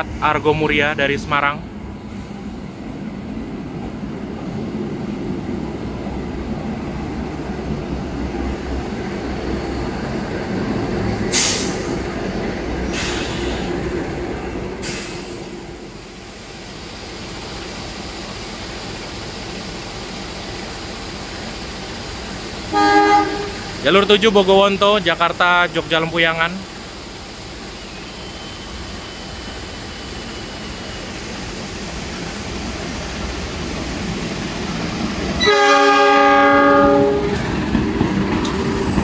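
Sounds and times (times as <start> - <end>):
train wheels rumbling on rail: 0.0 - 39.0
short sharp hisses: 11.3 - 12.0, 12.9 - 13.8, 14.8 - 15.7.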